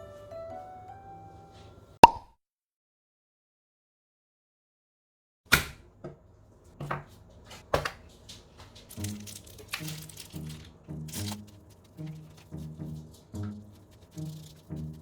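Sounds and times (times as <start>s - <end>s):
soft music: 0.0s - 2.0s, 8.8s - 15.0s.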